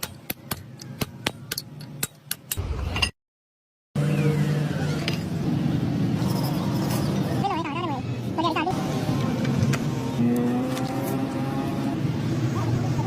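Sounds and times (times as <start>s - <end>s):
low engine-like hum: 4.0s - 13.0s.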